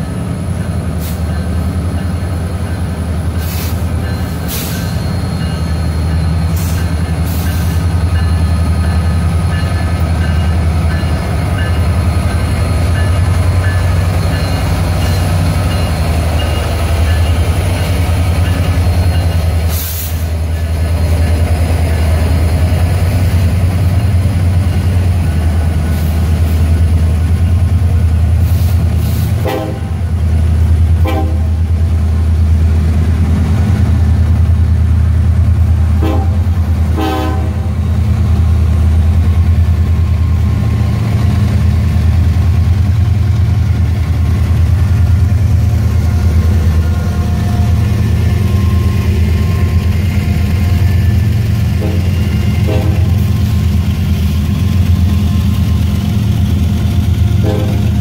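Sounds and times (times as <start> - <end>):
freight train rumbling past: 0.0 - 58.0
train horn blasts: 29.4 - 30.0, 31.0 - 31.7, 35.9 - 37.8, 51.8 - 53.4, 57.3 - 58.0.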